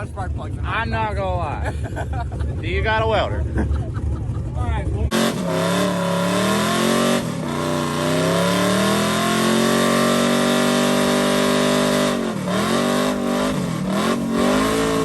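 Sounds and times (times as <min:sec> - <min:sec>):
truck engine revving hard: 0:05.1 - 0:15.0.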